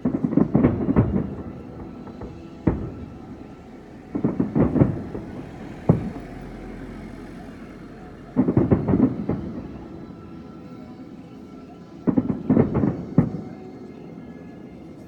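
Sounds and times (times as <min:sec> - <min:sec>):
fireworks bangs: 0:00.0 - 0:10.8, 0:12.0 - 0:13.8.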